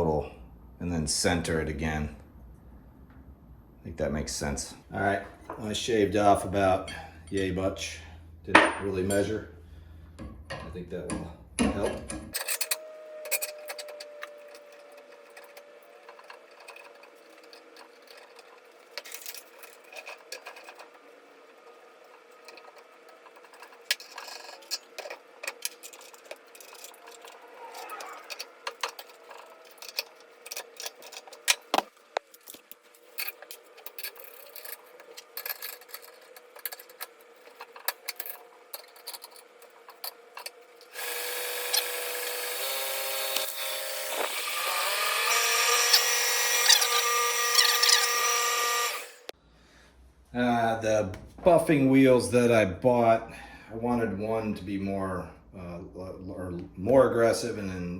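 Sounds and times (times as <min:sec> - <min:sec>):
faint steady hum: 0:00.0 - 0:43.7
metal parts and tools clinking: 0:11.6 - 0:49.1.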